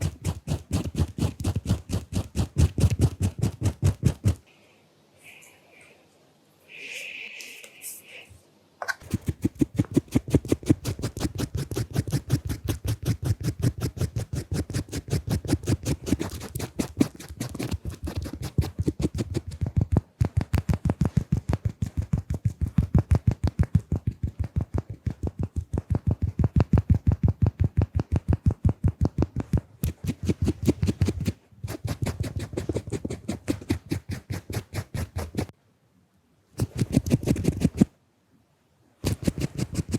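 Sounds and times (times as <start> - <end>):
scratchy drawing strokes: 0.0 - 4.4, 8.9 - 28.3, 28.9 - 35.5, 36.6 - 37.9, 39.0 - 39.9
brief hiss: 6.7 - 8.3.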